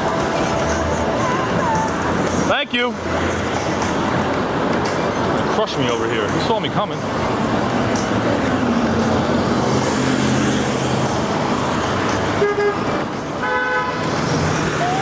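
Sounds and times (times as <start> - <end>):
vehicle engines running: 0.0 - 15.0
car horn honks: 12.3 - 14.1.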